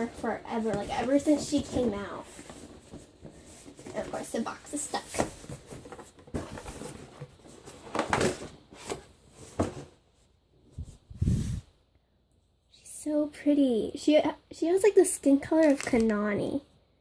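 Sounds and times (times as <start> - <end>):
cardboard box rustling and scraping: 0.0 - 10.0.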